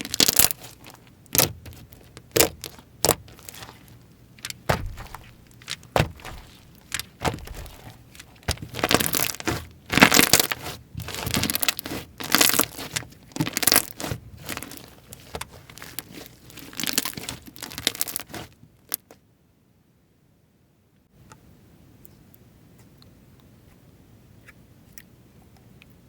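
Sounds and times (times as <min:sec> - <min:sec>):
slime squishing and crackling: 0:00.0 - 0:19.1.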